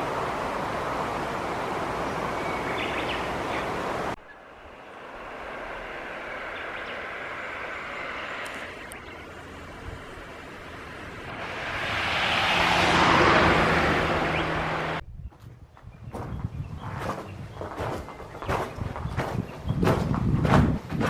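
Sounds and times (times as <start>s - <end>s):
car driving road noise: 0.0s - 15.0s.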